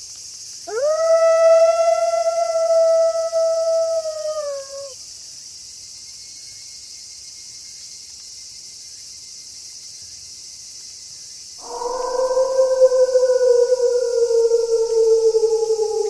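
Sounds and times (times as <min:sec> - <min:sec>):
crickets chirping: 0:00.0 - 0:16.0
wolf howling: 0:00.7 - 0:05.0, 0:11.6 - 0:16.0.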